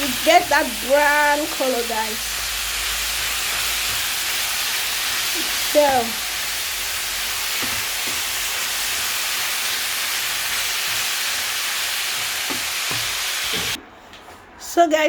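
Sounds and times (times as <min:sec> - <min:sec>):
chicken and onions sizzling in oil: 0:00.0 - 0:13.8.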